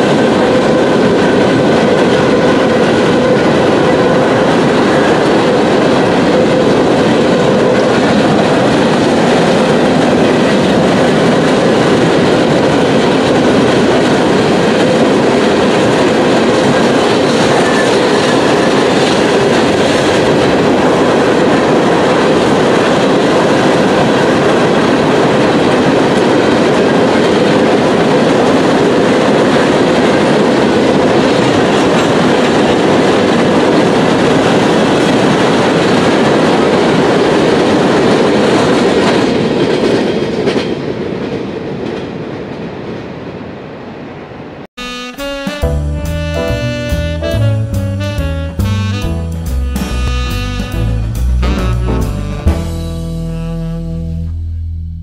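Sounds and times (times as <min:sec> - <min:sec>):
freight train rumbling past: 0:00.0 - 0:54.6.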